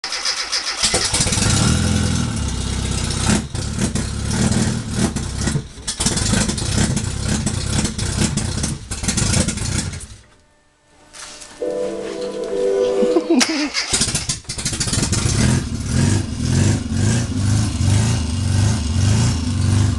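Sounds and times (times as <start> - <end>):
car engine revving: 13.7 - 19.9.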